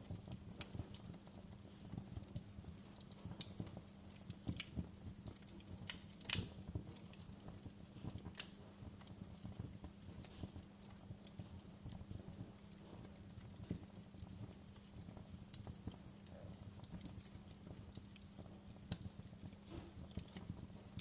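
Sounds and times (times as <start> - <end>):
fire crackling in a fireplace: 0.0 - 21.0.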